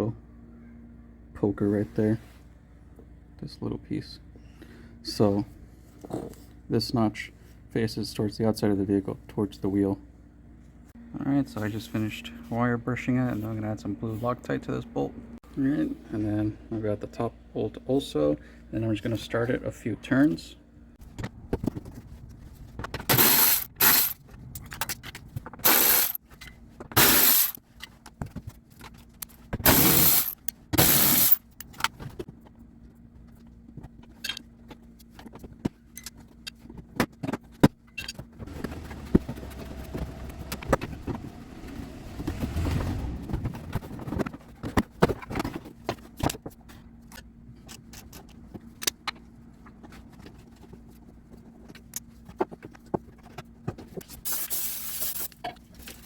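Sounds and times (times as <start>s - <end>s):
metal tools and bolts rattling: 23.1s - 26.2s, 27.0s - 27.6s, 29.7s - 31.8s.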